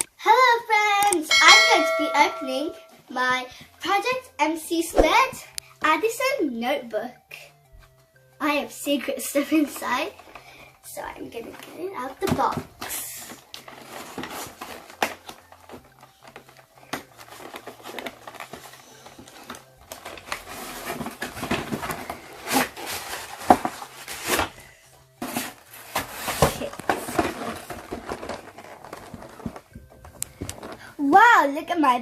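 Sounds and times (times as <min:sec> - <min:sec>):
packaging rustling and crinkling: 0:12.4 - 0:31.0.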